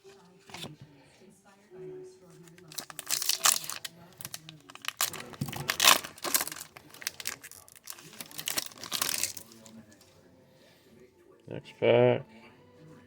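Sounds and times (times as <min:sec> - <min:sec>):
foil wrapper crinkling and tearing: 0:02.4 - 0:09.9.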